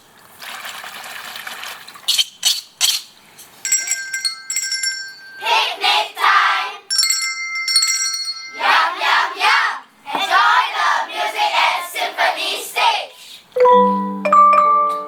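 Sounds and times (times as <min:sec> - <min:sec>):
small bells ringing: 0:03.6 - 0:06.2, 0:06.9 - 0:09.3, 0:13.6 - 0:15.0.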